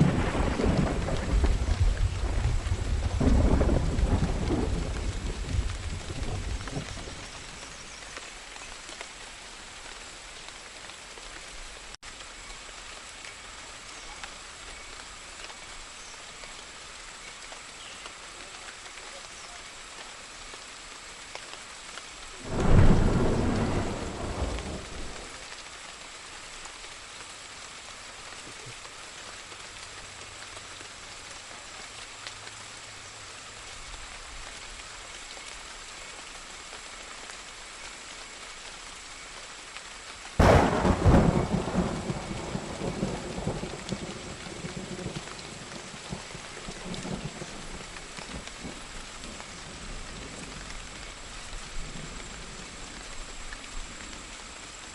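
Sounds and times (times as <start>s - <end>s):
thunder: 0.0s - 7.2s, 22.4s - 25.3s, 40.4s - 47.6s
steady rain: 0.0s - 54.9s.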